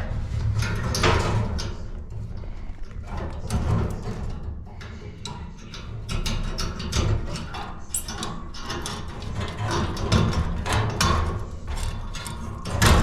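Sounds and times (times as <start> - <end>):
tools and parts clicking: 5.7 - 10.0.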